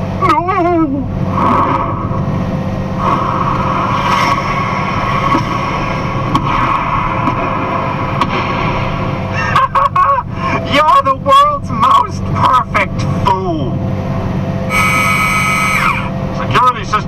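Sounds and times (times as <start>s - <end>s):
engine and road drone: 0.0s - 17.0s.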